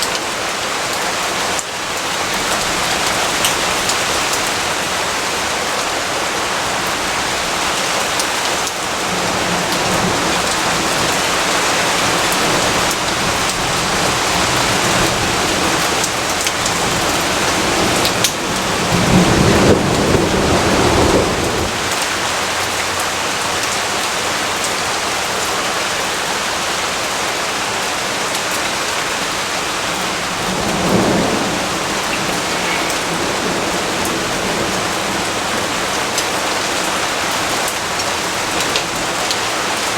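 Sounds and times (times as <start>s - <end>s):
heavy rainfall: 0.0s - 39.9s
thunder rumbling: 8.8s - 22.8s, 29.4s - 37.8s.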